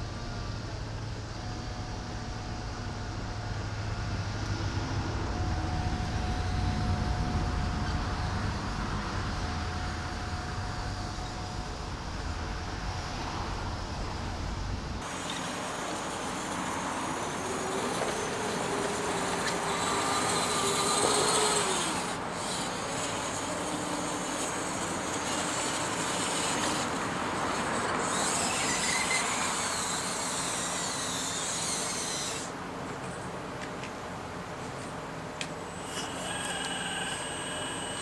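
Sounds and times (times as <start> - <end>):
small electric motors whining: 15.0 - 38.0
steady hiss: 15.0 - 38.0.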